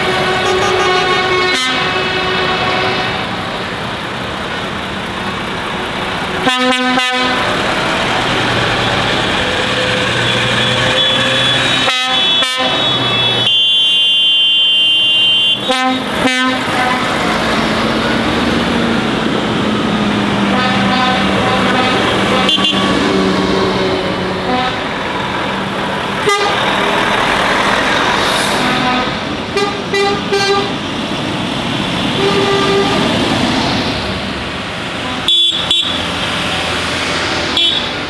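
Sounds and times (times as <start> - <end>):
air horns: 0.0 - 3.5, 6.4 - 7.6, 10.3 - 17.3, 20.5 - 24.9, 26.2 - 26.7, 28.2 - 30.8, 32.2 - 33.1, 35.0 - 36.0, 37.6 - 38.0
lorry engines passing: 0.0 - 38.0.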